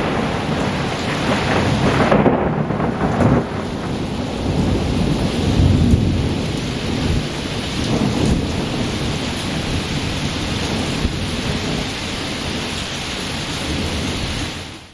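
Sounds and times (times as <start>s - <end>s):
steady rain: 0.0s - 14.9s
thunder rumbling: 0.0s - 14.9s.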